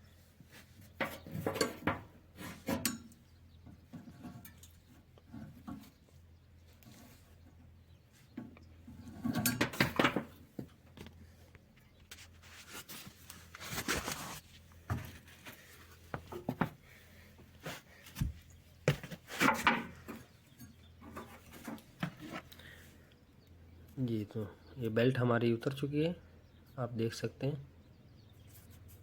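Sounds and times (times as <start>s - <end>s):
belt scraping and clattering on pulleys: 9.0s - 10.3s.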